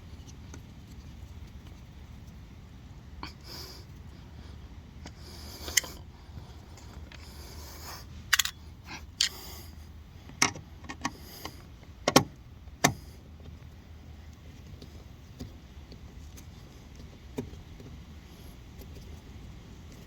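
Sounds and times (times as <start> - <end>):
low steady hum: 0.0 - 20.0
metallic clicks of hand tools: 8.3 - 8.6.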